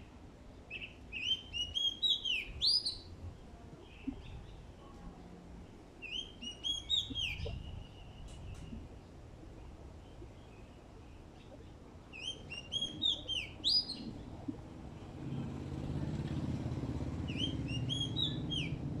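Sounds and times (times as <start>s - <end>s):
songbird whistling: 0.7s - 3.1s, 6.0s - 8.7s, 12.1s - 14.1s, 17.3s - 18.8s
low engine hum: 12.7s - 19.0s.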